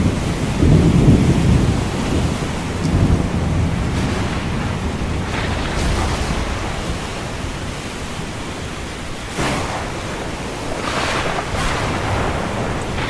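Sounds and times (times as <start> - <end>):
ocean waves washing in: 0.0 - 13.0
wave breaking: 3.9 - 13.0.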